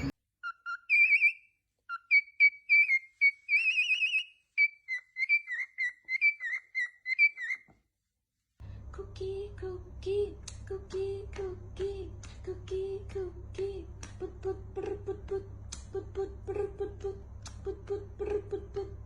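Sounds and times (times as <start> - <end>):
parrot whistling: 0.0 - 7.7.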